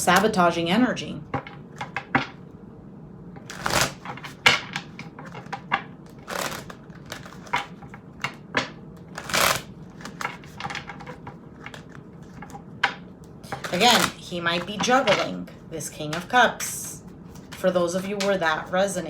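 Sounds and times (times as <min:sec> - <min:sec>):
cards clicking and tapping: 0:01.4 - 0:02.4, 0:03.4 - 0:15.4, 0:16.0 - 0:16.4, 0:17.3 - 0:18.7.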